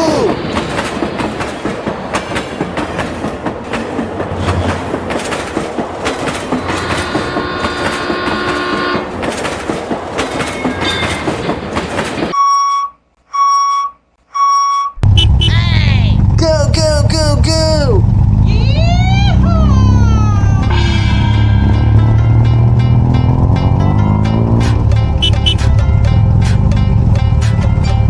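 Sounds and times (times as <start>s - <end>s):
train wheels clattering: 0.0s - 12.4s
train horn: 6.6s - 9.1s, 25.2s - 25.7s
short electronic beeps: 12.4s - 15.7s, 25.2s - 25.7s.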